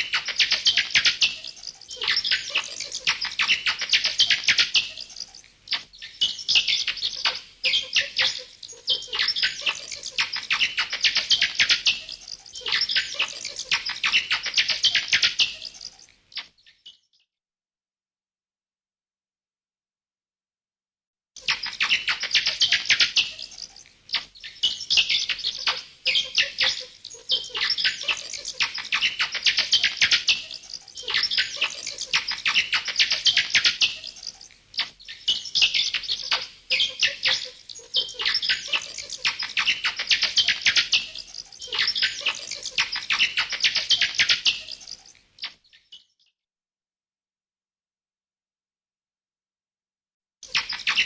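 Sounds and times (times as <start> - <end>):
bats chattering: 0.0 - 16.1, 21.4 - 45.6.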